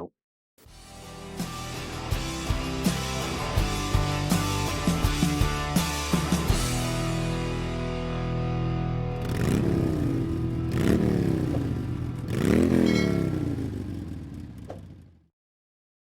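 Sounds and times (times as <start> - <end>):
motorcycle engine revving: 9.1 - 15.3.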